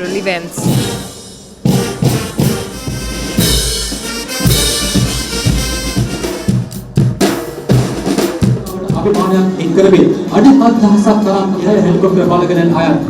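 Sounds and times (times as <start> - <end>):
pitched instruments playing: 0.0 - 13.0
deep drum hits: 0.6 - 10.4.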